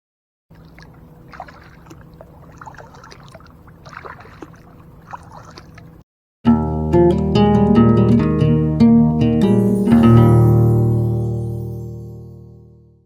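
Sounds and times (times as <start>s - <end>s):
paddle splashing water: 0.5s - 6.0s
steady low hum: 0.5s - 6.0s.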